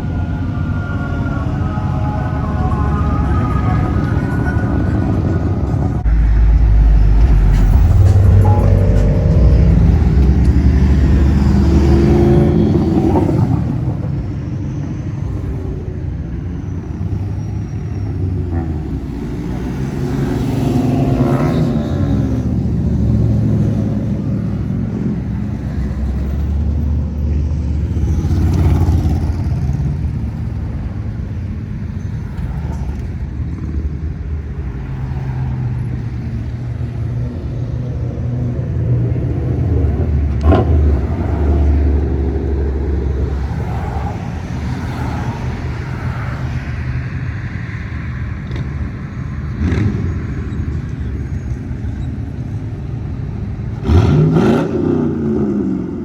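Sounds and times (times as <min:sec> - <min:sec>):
car engines rumbling past: 0:00.0 - 0:56.0.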